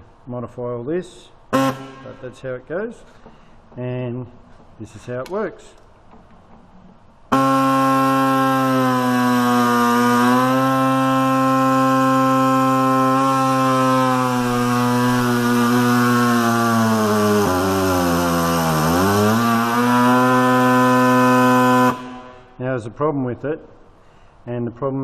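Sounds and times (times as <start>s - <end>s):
electric motor whining: 7.3s - 22.4s.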